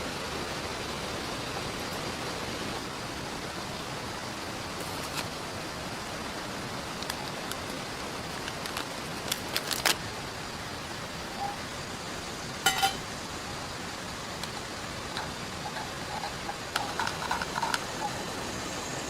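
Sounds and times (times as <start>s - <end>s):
rain falling: 0.0s - 19.0s
river water flowing: 0.0s - 19.0s
metallic ring: 11.3s - 11.6s, 12.6s - 13.1s.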